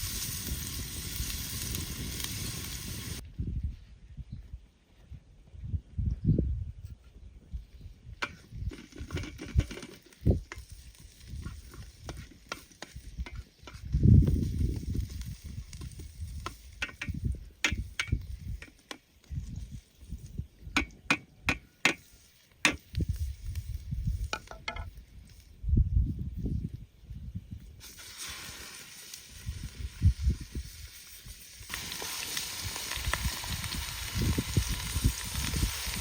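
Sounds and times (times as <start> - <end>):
faint hiss: 0.0 - 3.2, 27.5 - 36.0.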